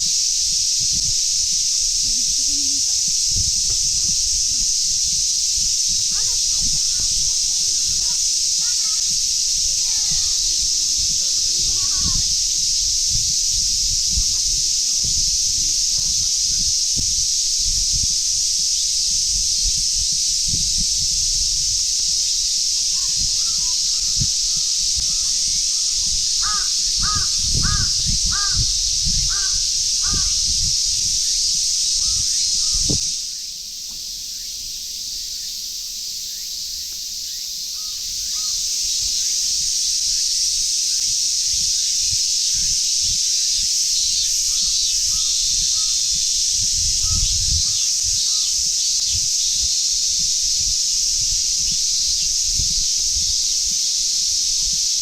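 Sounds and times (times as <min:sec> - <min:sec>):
cicadas droning: 0:00.0 - 0:55.0
crow cawing: 0:06.9 - 0:09.1, 0:23.4 - 0:30.4, 0:37.8 - 0:38.6.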